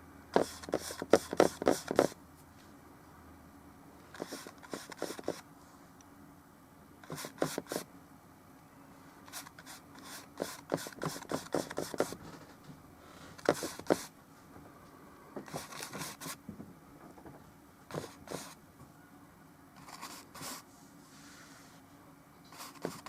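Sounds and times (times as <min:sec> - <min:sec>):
paintbrush dabbing and scraping: 0:09.3 - 0:12.2.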